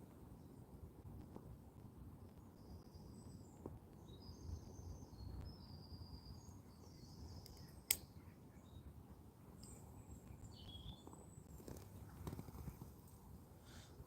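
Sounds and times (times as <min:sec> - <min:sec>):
songbird singing: 0:02.4 - 0:12.5.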